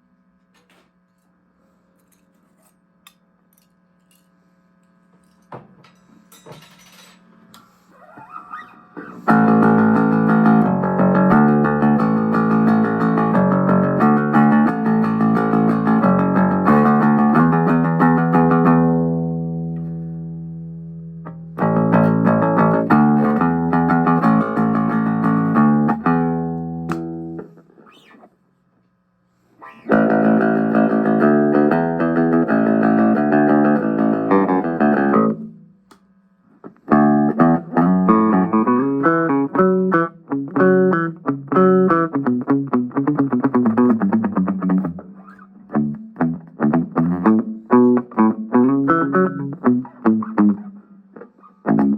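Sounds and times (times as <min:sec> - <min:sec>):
electric bass plucked notes: 0:09.0 - 0:27.6, 0:29.7 - 0:35.7, 0:36.7 - 0:51.9.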